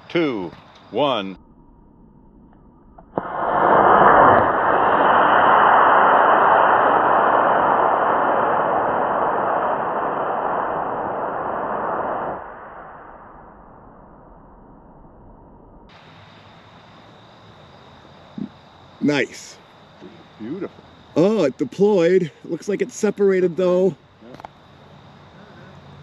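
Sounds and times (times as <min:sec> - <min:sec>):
rocket rushing whoosh: 0:03.2 - 0:13.8.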